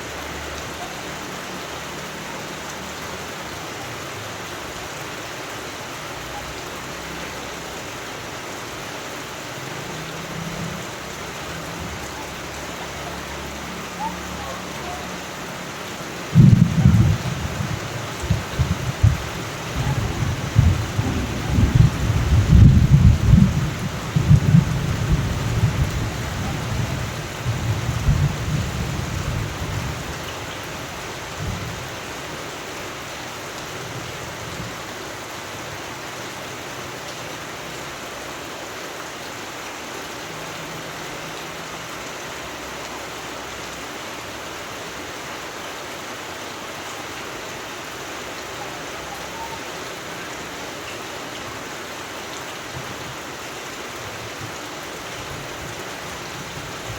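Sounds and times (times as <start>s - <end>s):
rain falling: 0.0s - 56.9s
thunder rumbling: 16.3s - 30.1s.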